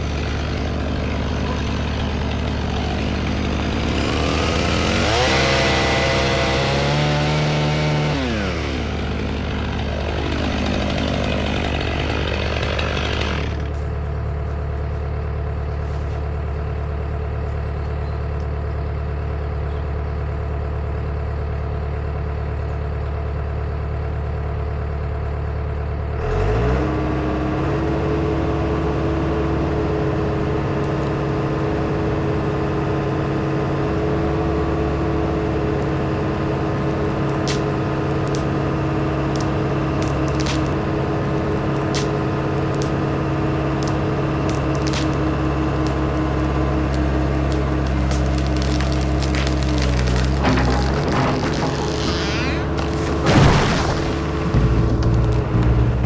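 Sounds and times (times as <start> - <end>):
chainsaw revving and cutting: 0.0 - 13.9, 26.2 - 56.0
diesel tractor engine running: 0.0 - 56.0.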